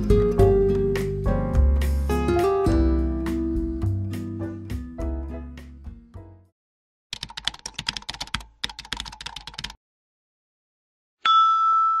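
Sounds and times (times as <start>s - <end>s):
background music: 0.0s - 6.5s
computer keyboard typing: 7.1s - 9.8s.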